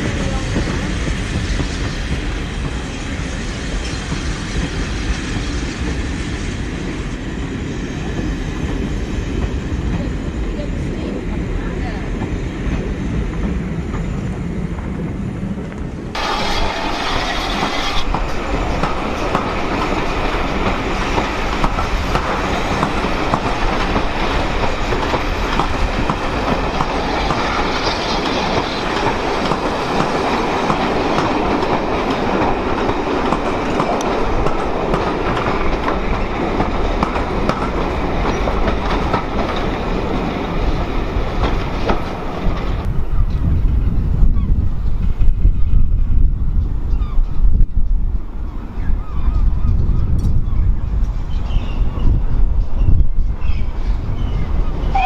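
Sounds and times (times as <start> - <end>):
train wheels clattering over rail joints: 16.2 - 42.9.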